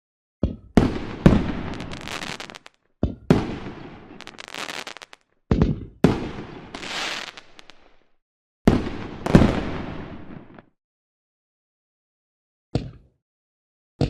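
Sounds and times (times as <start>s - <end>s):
fireworks bangs: 0.8s - 2.7s, 3.3s - 5.2s, 5.8s - 8.0s, 8.7s - 10.6s
fireworks crackle: 0.9s - 2.8s, 3.4s - 5.2s, 6.1s - 8.1s.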